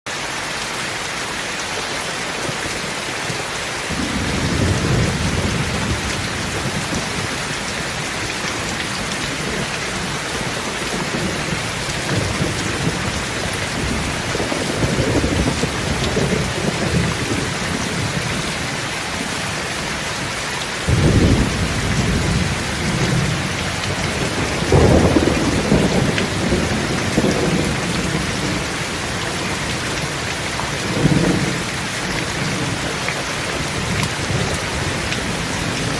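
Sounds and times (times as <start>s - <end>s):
steady rain: 0.1s - 35.9s
low thunder rolling: 3.9s - 7.4s, 20.9s - 30.0s.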